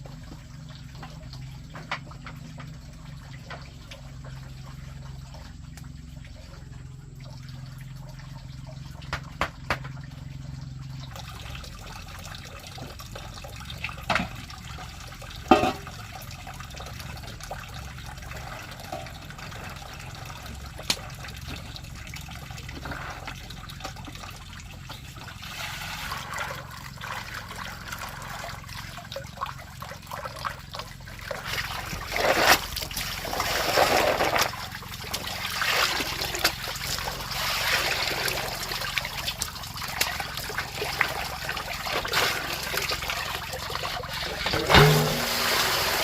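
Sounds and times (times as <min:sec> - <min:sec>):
water trickling and splashing: 0:00.0 - 0:46.0.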